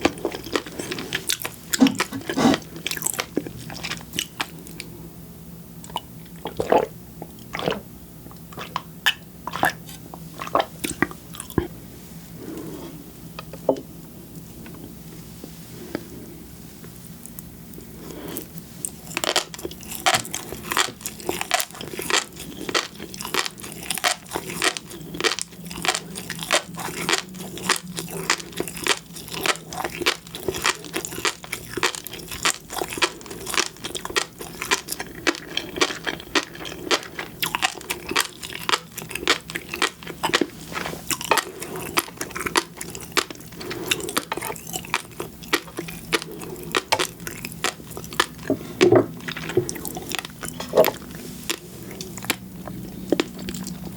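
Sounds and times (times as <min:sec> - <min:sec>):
chewing seafood crisp pops: 0:00.0 - 0:04.6, 0:18.5 - 0:53.9.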